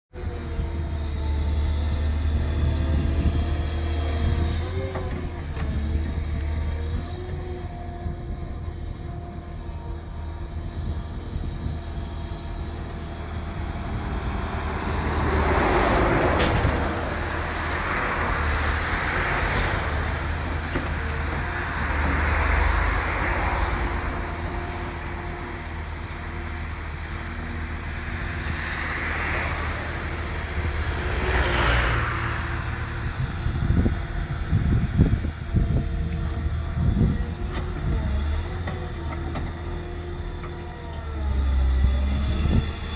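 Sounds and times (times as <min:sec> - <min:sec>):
diesel engine humming: 0:00.1 - 0:42.9.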